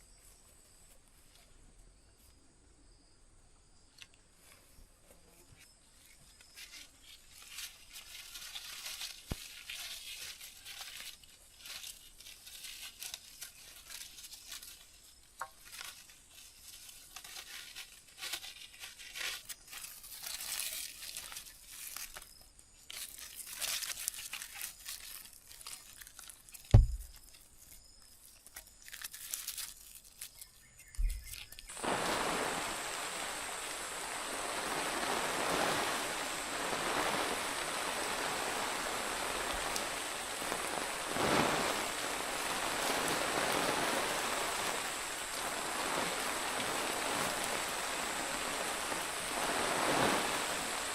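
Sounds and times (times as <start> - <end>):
crinkling and rustling handling: 4.0 - 31.8
loud thump: 26.7 - 27.1
water rushing: 31.7 - 50.9.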